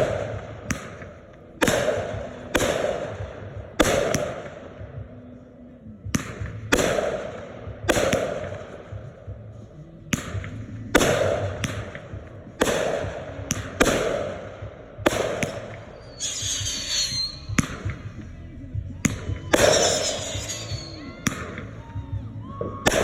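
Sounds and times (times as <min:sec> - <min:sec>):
firework mortar shells bursting: 0:10.1 - 0:18.4, 0:19.0 - 0:21.8
firework crackling burst: 0:15.1 - 0:18.2, 0:19.5 - 0:21.6.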